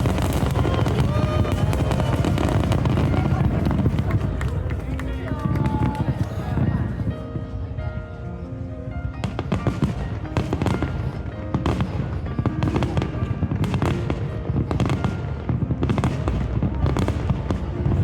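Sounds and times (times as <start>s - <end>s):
fireworks bursting and crackling: 0.0s - 7.3s, 9.1s - 18.0s
background music: 0.0s - 18.0s.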